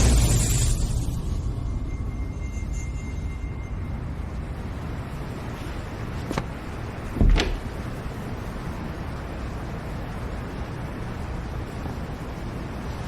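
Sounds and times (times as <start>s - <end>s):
heavy thump: 7.2s - 7.8s.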